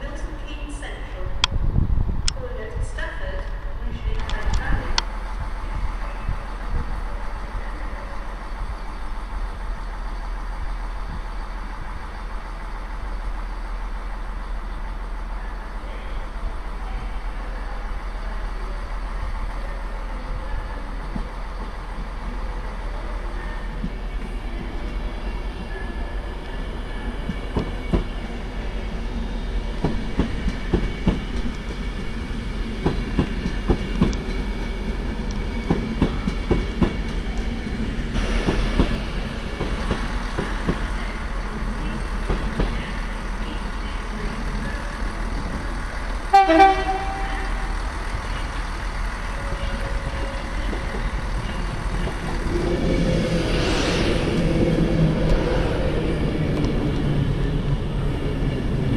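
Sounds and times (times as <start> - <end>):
train wheels clicking over rail joints: 27.2 - 28.2, 29.7 - 43.4.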